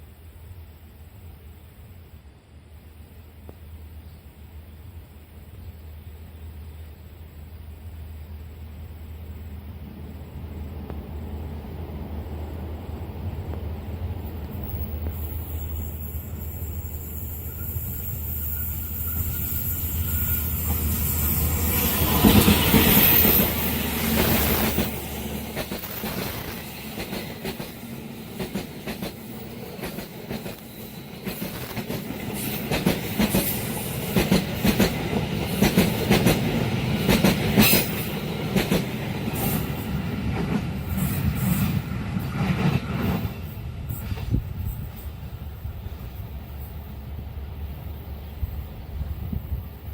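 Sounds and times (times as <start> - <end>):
locomotive passing: 8.5 - 49.9
train wheels clacking over rail joints: 20.6 - 41.6.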